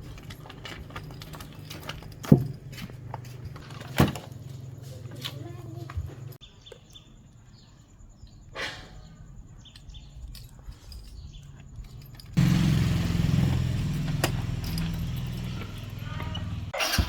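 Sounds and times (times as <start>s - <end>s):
small engine running: 12.4s - 17.0s.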